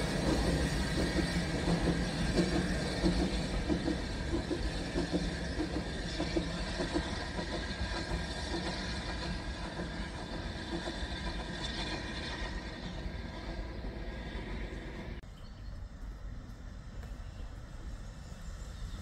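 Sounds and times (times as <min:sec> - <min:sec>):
steam train rumbling: 0:00.0 - 0:19.0.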